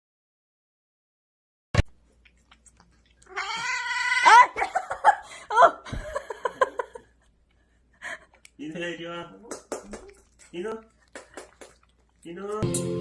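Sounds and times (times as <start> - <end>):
cat yowling and meowing: 3.3 - 4.6.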